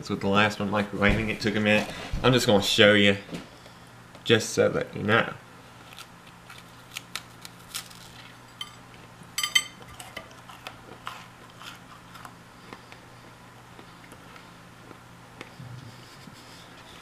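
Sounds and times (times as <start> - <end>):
low steady hum: 0.0 - 17.0
doughnut clattering on plate: 9.4 - 10.4
person chewing: 9.8 - 17.0.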